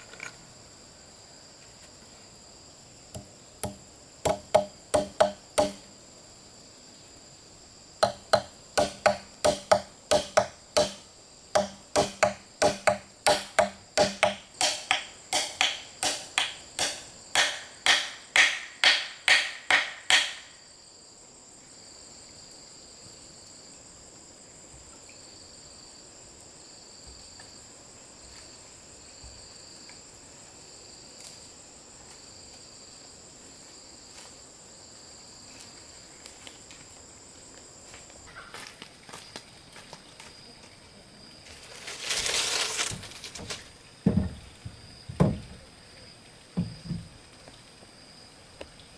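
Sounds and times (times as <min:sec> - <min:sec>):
insects trilling: 0:00.0 - 0:48.9
hand tool chopping wood: 0:03.2 - 0:05.9, 0:08.0 - 0:20.5.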